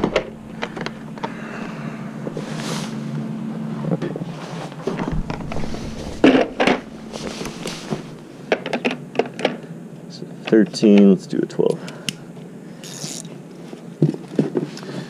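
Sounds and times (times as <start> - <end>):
steady low hum: 0.0 - 14.0
loud knock: 4.9 - 8.3.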